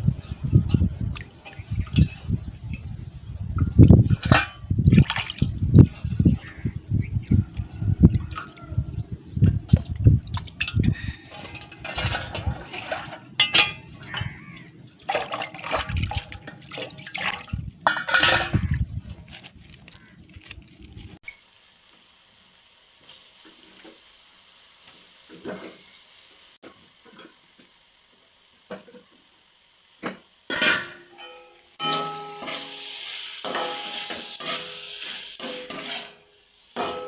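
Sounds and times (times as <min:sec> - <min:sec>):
water sloshing and splashing: 0:04.1 - 0:06.1, 0:07.5 - 0:08.6, 0:09.4 - 0:21.1.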